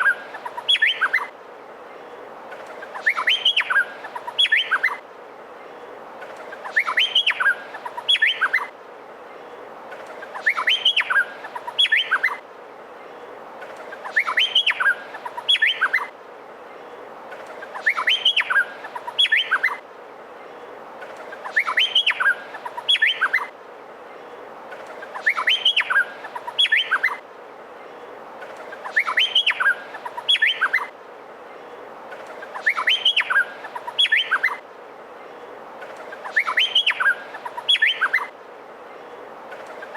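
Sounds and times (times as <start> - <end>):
bird singing whistled notes: 0.0 - 1.3, 2.9 - 5.0, 6.6 - 8.7, 10.3 - 12.4, 14.0 - 16.1, 17.7 - 19.8, 21.4 - 23.5, 25.1 - 27.2, 28.8 - 30.9, 32.5 - 34.6, 36.2 - 38.3
steady hiss: 0.0 - 39.9.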